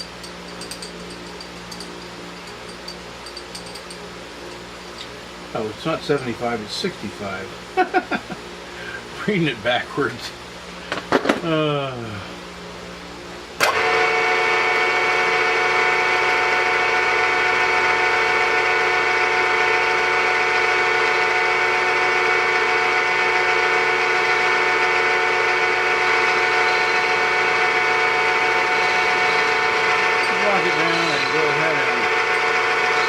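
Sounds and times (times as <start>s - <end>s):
machine spindle whining: 13.6s - 33.0s.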